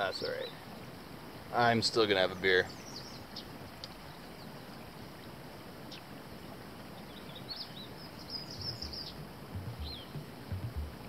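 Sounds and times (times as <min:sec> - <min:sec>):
faint outdoor hiss: 0:00.0 - 0:11.0
short high bird chirps: 0:08.2 - 0:10.2.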